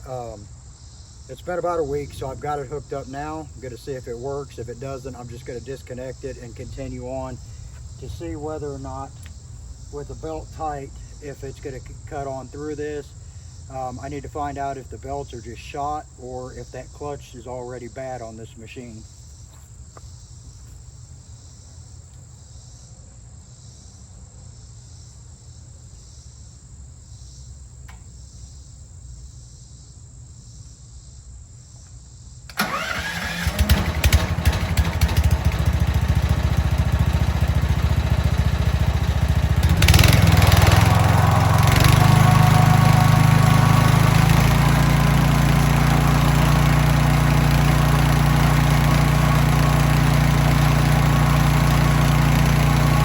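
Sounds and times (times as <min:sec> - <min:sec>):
crickets chirping: 0:00.0 - 0:33.5, 0:36.8 - 0:46.3
sawmill gas engine running: 0:32.5 - 0:53.0.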